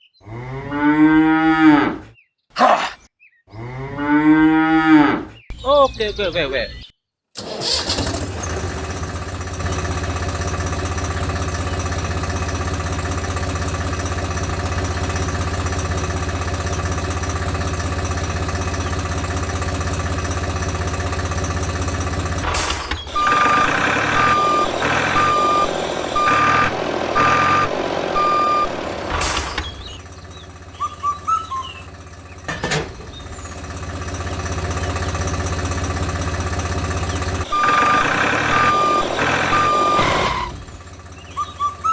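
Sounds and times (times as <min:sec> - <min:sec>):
vehicle engine droning: 0:07.4 - 0:41.9
reversing beeper: 0:22.4 - 0:30.1, 0:30.7 - 0:31.9, 0:37.4 - 0:41.9.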